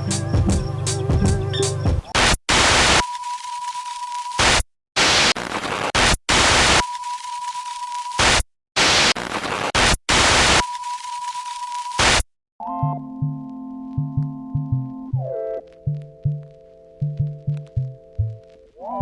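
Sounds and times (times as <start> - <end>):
white-noise hiss bursts: 2.2 - 3.0, 4.4 - 6.8, 8.2 - 10.6, 12.0 - 12.2.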